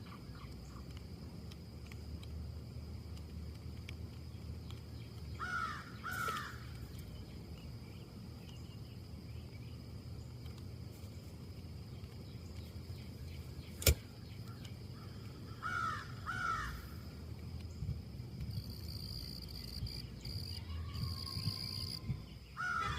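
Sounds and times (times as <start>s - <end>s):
low background rumble: 0.0s - 22.9s
crow cawing: 5.4s - 6.6s, 15.0s - 16.8s, 22.6s - 22.9s
sharp click: 13.8s - 14.7s.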